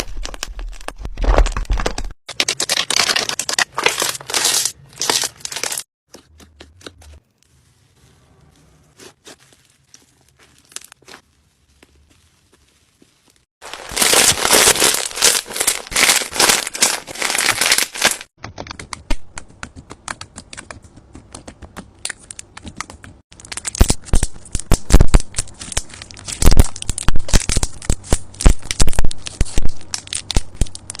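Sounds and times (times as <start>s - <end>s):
slime crackling and popping: 13.2s - 19.3s, 22.1s - 31.0s.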